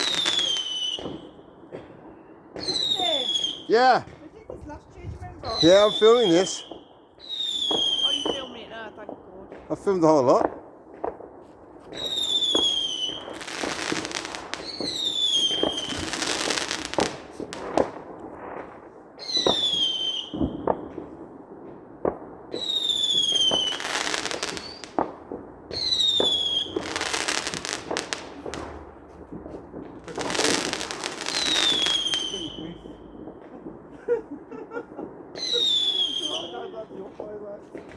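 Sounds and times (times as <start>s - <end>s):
whistling firework shells: 0.0s - 3.7s, 5.4s - 8.8s, 11.9s - 18.6s, 19.2s - 21.0s, 22.5s - 25.0s, 25.7s - 33.9s, 34.7s - 36.8s
firework bangs: 0.0s - 37.9s
firework crackling: 0.0s - 37.9s.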